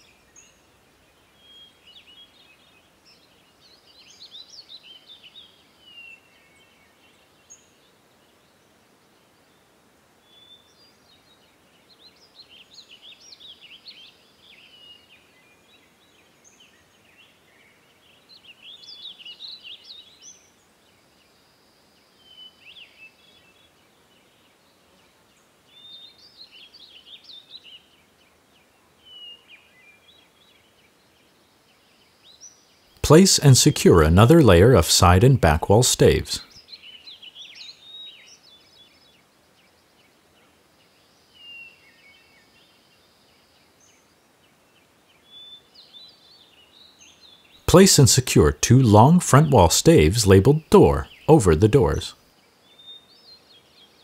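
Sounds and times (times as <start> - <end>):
faint steady hiss: 0.0 - 54.0
songbirds twittering: 9.3 - 32.9, 36.4 - 47.7, 50.8 - 54.0.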